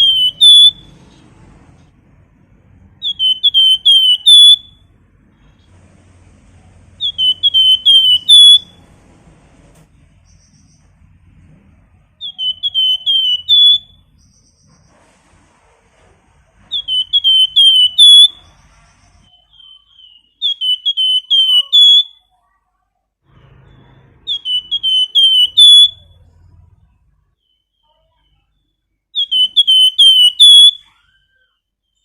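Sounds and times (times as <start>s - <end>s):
songbird whistling: 0.0s - 1.0s, 2.9s - 4.9s, 6.9s - 8.8s, 12.2s - 14.9s, 16.6s - 22.3s, 23.8s - 26.3s, 27.4s - 32.0s.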